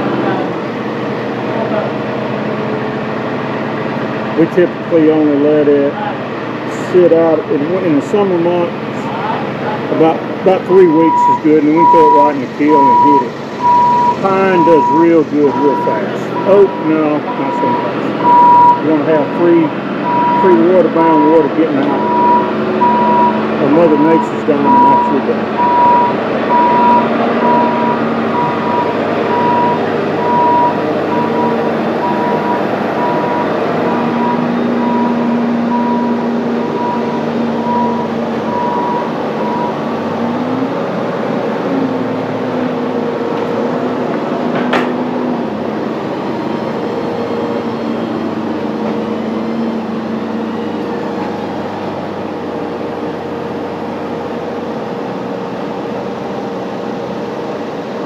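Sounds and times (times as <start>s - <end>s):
sawmill machinery running: 0.0s - 58.0s
reversing alarm beeping: 10.0s - 40.7s.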